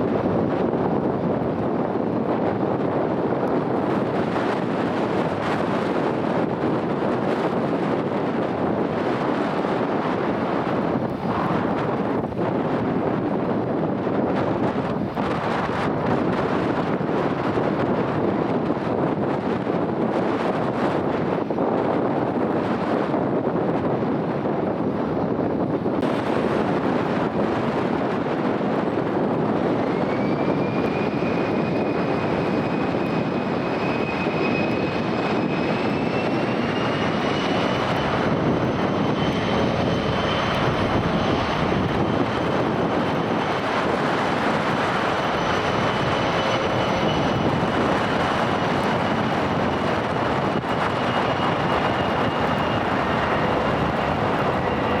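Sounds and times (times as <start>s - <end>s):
jet engine turbine whine: 0.0s - 55.0s
even rushing noise: 1.8s - 23.2s, 25.6s - 55.0s.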